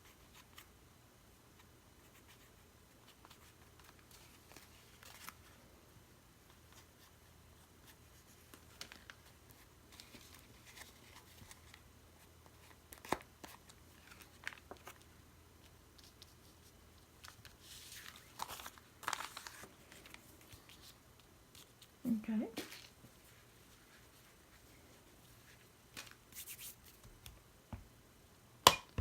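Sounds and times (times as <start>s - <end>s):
paper scraping and crinkling: 17.2s - 21.0s.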